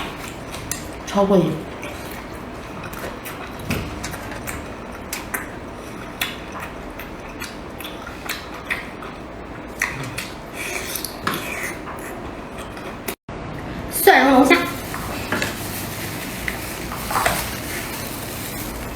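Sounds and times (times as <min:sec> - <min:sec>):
eating crunches: 0:01.7 - 0:13.2, 0:14.7 - 0:18.9
wet lip smacks: 0:09.8 - 0:11.4.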